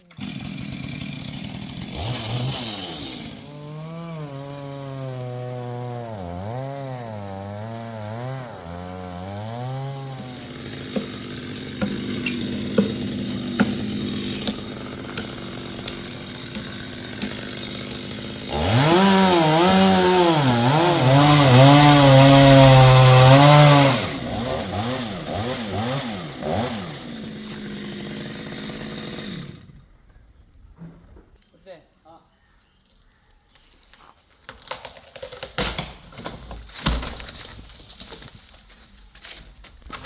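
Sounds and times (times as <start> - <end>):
chainsaw revving: 0.0 - 29.9.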